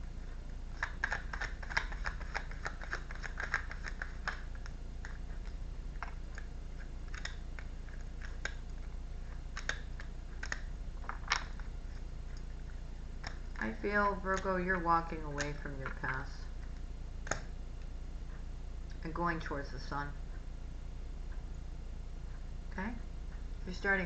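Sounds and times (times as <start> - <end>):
faint low hum: 0.0 - 24.0
cards clicking and snapping: 0.8 - 6.5, 7.1 - 8.6, 9.5 - 11.6.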